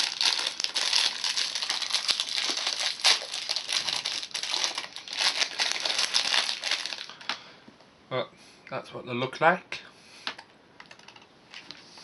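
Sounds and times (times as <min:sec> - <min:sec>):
plastic packet crinkling: 0:00.0 - 0:07.3.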